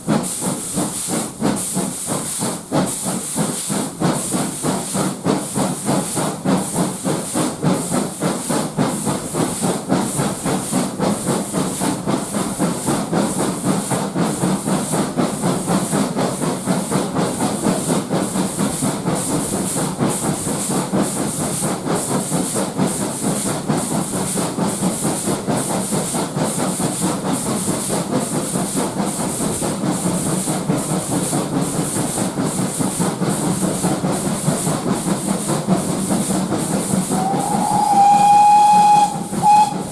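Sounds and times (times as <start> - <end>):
steam hissing: 0.0 - 39.9
steam locomotive exhaust beats: 0.0 - 39.9.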